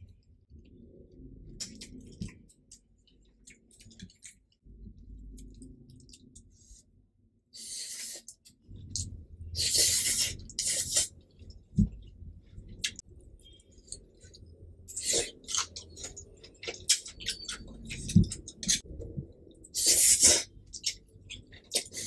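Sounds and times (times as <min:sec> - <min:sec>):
wet chewing: 0:12.7 - 0:18.8.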